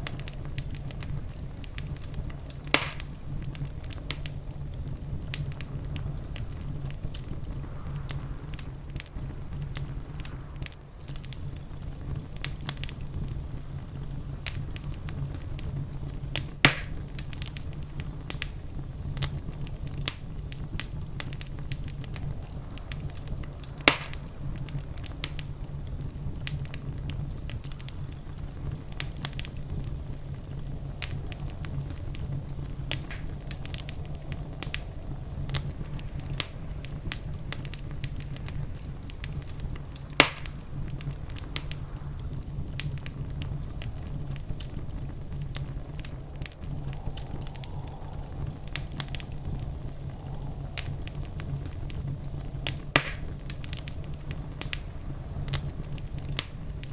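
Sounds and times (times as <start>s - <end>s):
loud fire pops: 0.0s - 56.9s
low fire rumble: 0.0s - 56.9s
wood fire crackling: 0.0s - 56.9s.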